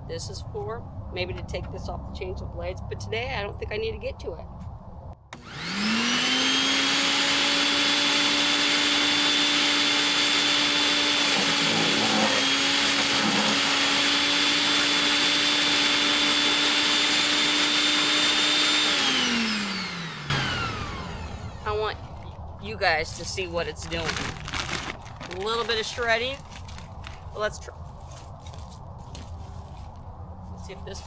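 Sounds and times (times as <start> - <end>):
electric wood chipper motor whining: 5.2 - 22.4.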